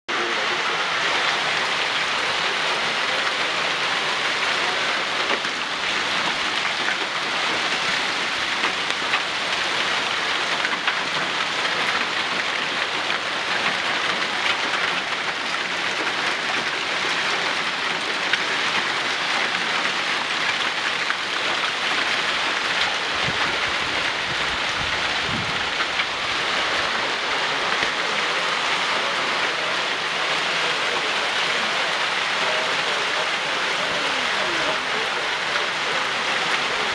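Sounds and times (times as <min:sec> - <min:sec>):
heavy rain falling: 0:00.1 - 0:36.9.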